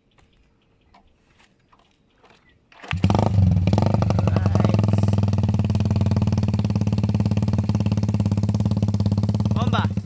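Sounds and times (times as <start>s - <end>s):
motorcycle engine exhaust pulses: 2.8s - 10.0s.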